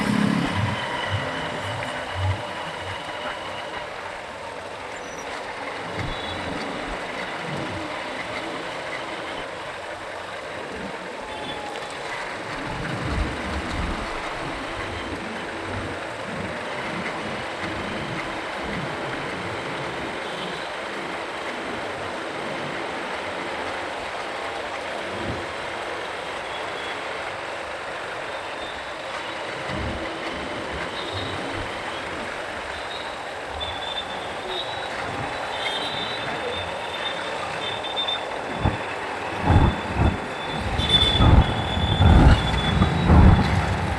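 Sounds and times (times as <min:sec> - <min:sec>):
wind rumbling on microphone: 0:00.0 - 0:24.2, 0:29.4 - 0:43.9
traffic and road noise: 0:00.0 - 0:43.9
wind buffeting microphone: 0:34.4 - 0:43.9.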